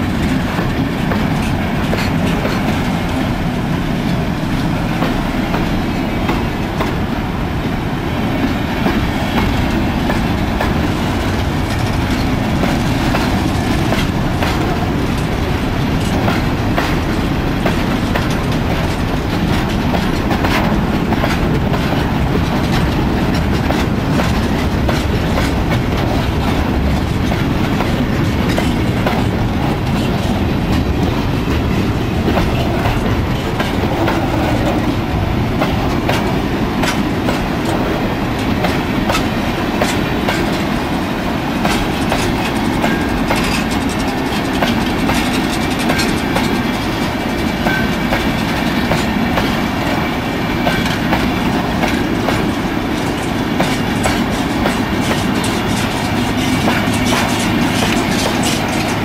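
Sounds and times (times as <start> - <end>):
freight train rumbling past: 0.0 - 59.0
wheels clattering over rail joints: 41.6 - 50.0, 50.6 - 59.0.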